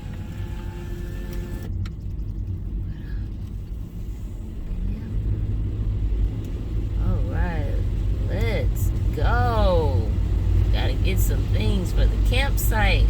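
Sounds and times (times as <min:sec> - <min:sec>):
power window motor: 0:00.0 - 0:01.7
car cabin rumble: 0:00.0 - 0:13.0.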